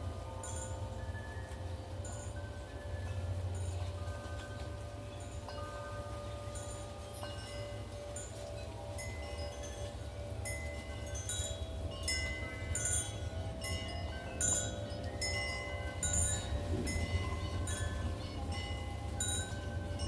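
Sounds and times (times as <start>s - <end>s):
wind chimes ringing: 0.0s - 20.0s.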